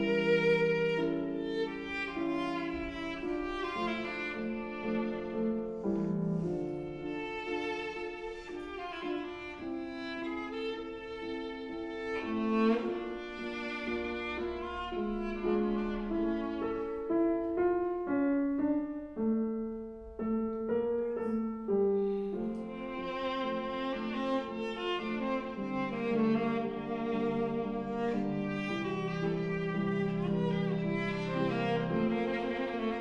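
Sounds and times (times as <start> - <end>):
viola playing a melody: 0.0 - 18.3, 20.4 - 33.0
piano accompaniment: 0.0 - 33.0.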